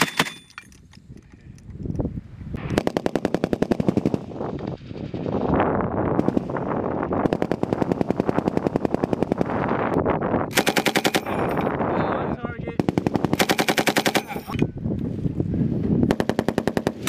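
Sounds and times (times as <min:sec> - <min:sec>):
machine guns firing bursts: 0:02.8 - 0:05.4, 0:06.2 - 0:06.6, 0:07.2 - 0:09.6, 0:10.5 - 0:11.5, 0:12.8 - 0:14.5, 0:16.1 - 0:17.0.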